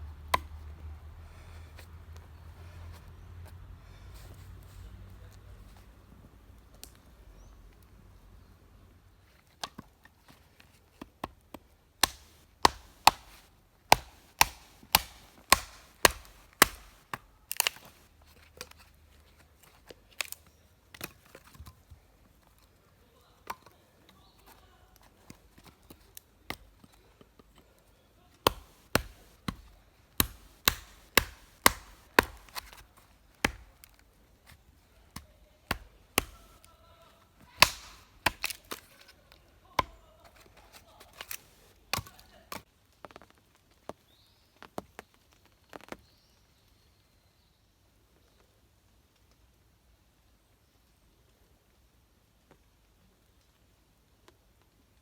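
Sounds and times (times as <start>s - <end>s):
wood being chopped: 0.2s - 0.9s, 12.0s - 18.0s, 28.4s - 34.6s, 35.2s - 36.7s, 37.4s - 39.0s, 39.8s - 40.0s, 41.1s - 42.6s.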